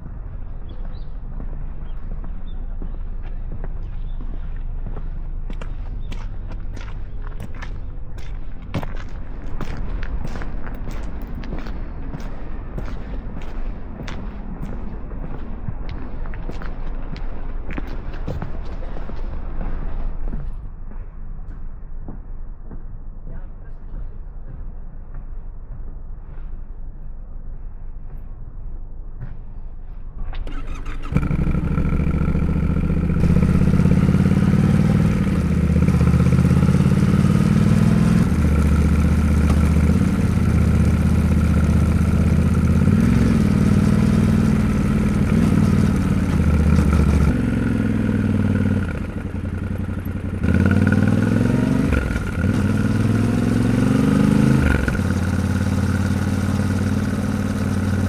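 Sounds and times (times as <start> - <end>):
motorcycle engine revving: 30.4 - 58.0.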